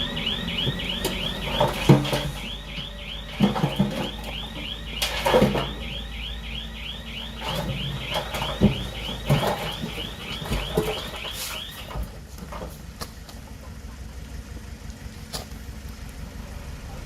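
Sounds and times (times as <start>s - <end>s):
reversing alarm chirping: 0.0s - 12.1s
diesel engine running: 0.0s - 17.0s.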